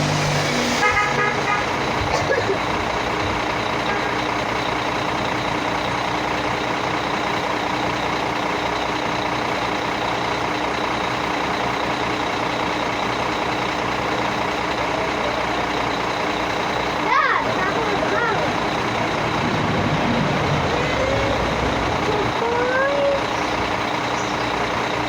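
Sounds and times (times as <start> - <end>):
heavy highway traffic: 0.0 - 25.0.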